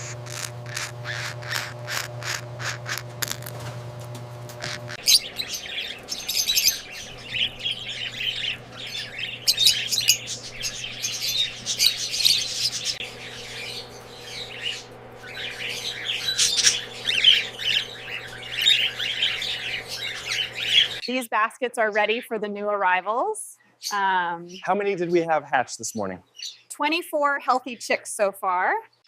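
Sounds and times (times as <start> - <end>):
cockatiels chirping and squawking: 0.0 - 3.4, 4.6 - 21.1
faint steady hum: 0.0 - 22.1.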